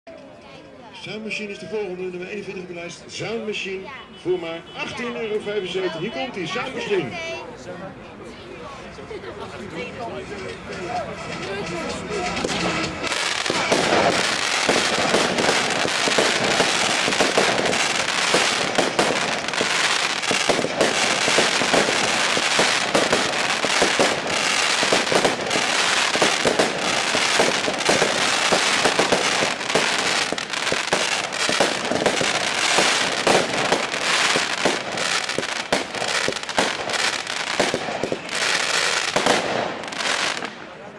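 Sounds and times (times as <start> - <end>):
firework rapid cracks and bangs: 12.4 - 40.7.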